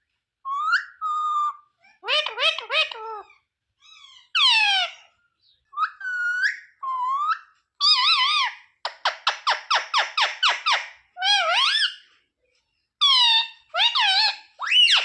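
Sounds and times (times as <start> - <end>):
parrot chattering: 0.5 - 5.1, 13.0 - 15.0
parrot calling: 0.5 - 5.2, 5.8 - 12.1, 13.0 - 15.0.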